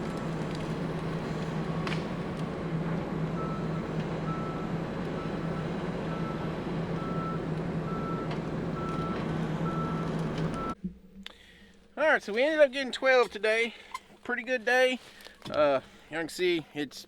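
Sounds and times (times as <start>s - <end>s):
diesel engine running: 0.0s - 10.8s
backup alarm beeping: 3.3s - 10.8s.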